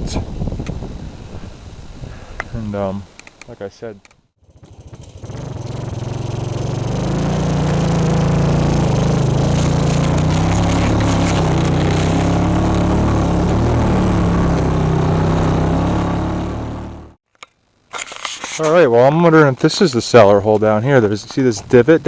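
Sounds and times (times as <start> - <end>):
atv engine running under load: 4.4 - 17.2.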